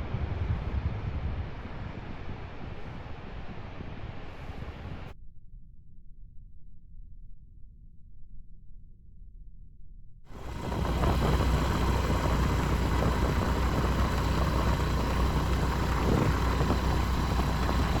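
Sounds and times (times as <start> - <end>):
motorcycle engine running: 10.3 - 18.0.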